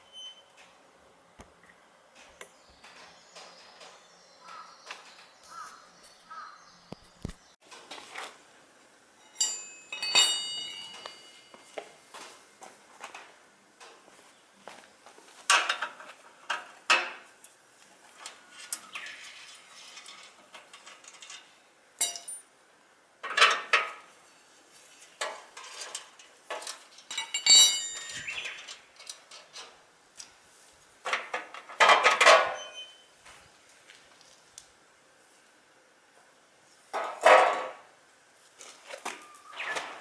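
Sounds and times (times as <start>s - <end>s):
metal tools clinking and rattling: 9.2s - 11.5s, 19.3s - 22.5s, 25.2s - 29.7s
short metallic ring: 9.2s - 11.6s
metal clatter: 18.9s - 22.4s, 25.2s - 29.7s.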